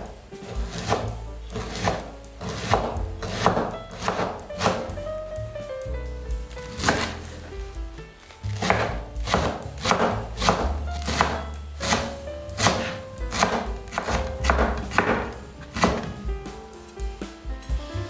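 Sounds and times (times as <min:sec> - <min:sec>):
soft background music: 0:00.0 - 0:18.0
knife chopping on cutting board: 0:00.4 - 0:04.9, 0:06.6 - 0:07.5, 0:08.6 - 0:16.2.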